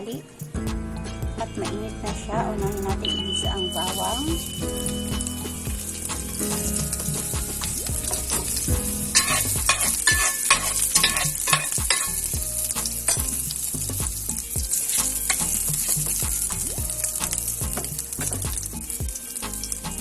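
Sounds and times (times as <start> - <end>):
garlic sizzling in hot oil: 4.9 - 20.0.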